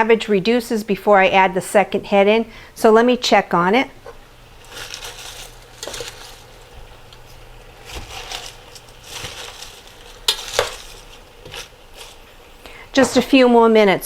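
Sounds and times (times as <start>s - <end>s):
utensil stirring and scraping: 4.1s - 12.7s
cabbage sizzling in a pan: 4.2s - 12.9s.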